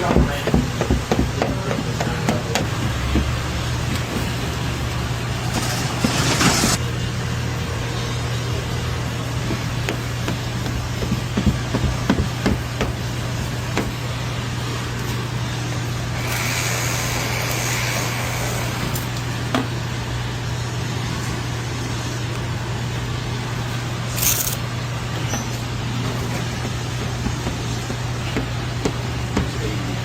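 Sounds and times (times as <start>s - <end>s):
hiss: 16.2s - 19.0s.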